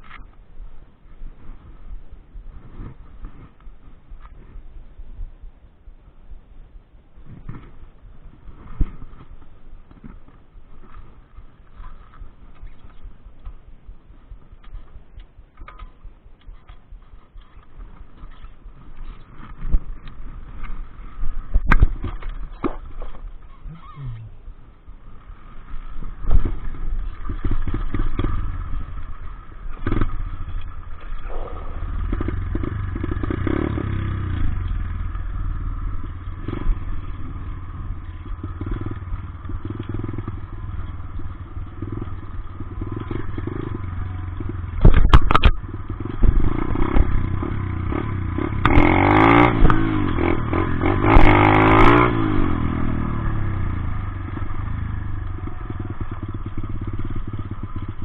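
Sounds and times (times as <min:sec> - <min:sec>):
dirt bike engine revving: 0:23.6 - 0:58.0.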